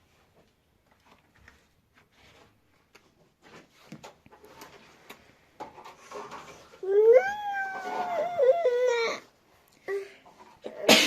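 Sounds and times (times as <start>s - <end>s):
small child whining cry: 6.8s - 9.3s.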